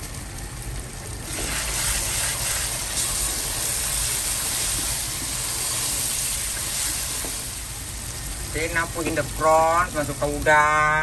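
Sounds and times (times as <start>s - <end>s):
paste sizzling in a pan: 1.1s - 11.0s.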